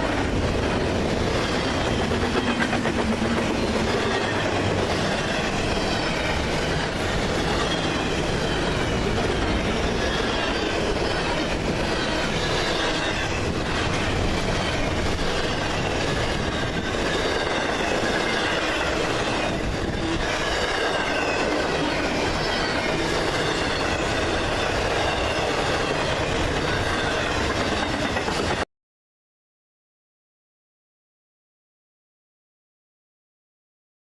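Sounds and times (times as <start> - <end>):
freight train cars rumbling past: 0.0 - 28.6
wheel squeal: 3.4 - 28.6.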